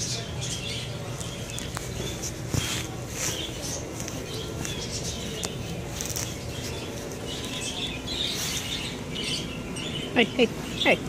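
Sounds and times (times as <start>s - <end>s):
birds chirping: 0.0s - 11.0s
low background hum: 0.0s - 11.0s.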